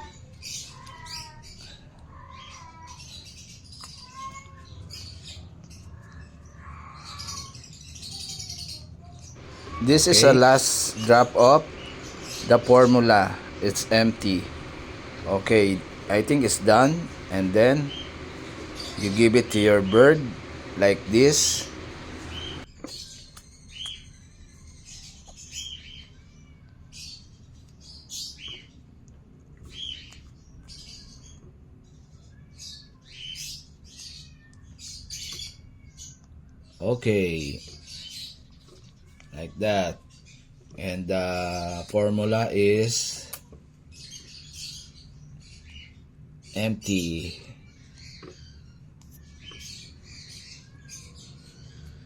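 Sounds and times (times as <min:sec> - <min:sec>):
parrot chirping: 0:09.4 - 0:22.7.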